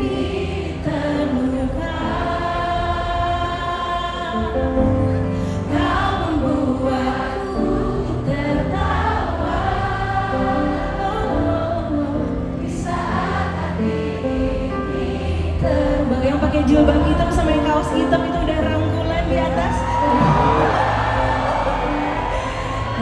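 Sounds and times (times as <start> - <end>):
woman singing into microphone: 0.0 - 9.0, 15.5 - 20.9
crowd singing along: 0.0 - 23.0.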